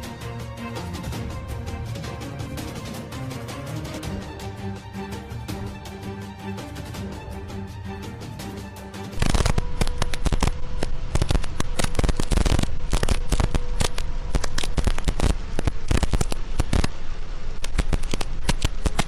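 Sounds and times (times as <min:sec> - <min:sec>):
faint hum: 0:09.2 - 0:19.0
heavy rain on a vehicle: 0:09.2 - 0:19.0.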